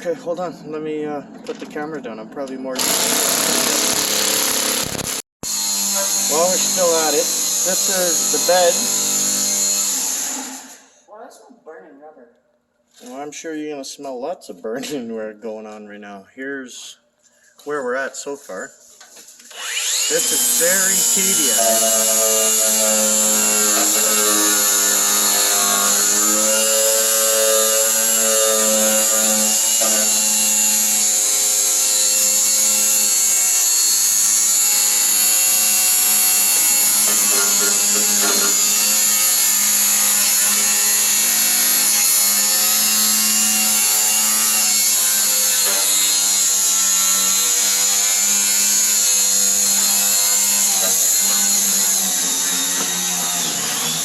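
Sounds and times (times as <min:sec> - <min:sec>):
power grinder grinding metal: 0:02.8 - 0:10.9, 0:19.5 - 0:54.0.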